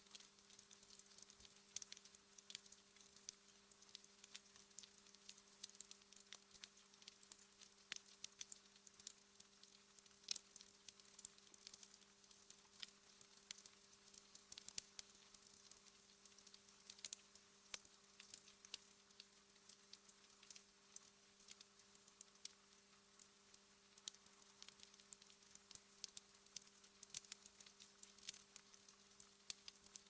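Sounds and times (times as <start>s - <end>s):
wood fire crackling: 0.1s - 11.8s, 17.8s - 22.6s, 24.0s - 30.0s.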